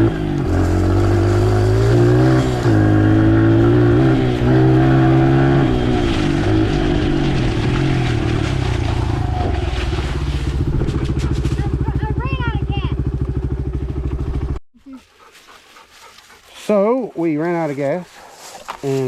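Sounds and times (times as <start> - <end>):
dirt bike engine revving: 0.0 - 14.6.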